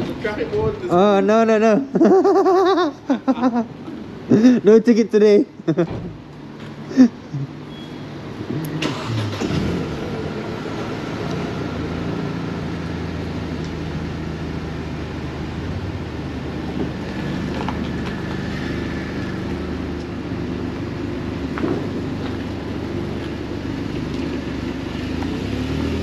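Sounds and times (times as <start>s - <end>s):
car engine starting and running: 5.7s - 26.0s.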